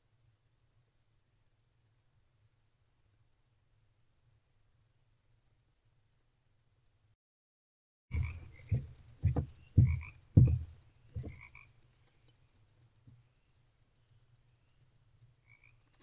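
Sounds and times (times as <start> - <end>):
dull low thumps: 8.1 - 11.6
frogs croaking: 8.1 - 16.0
low hum: 8.1 - 16.0.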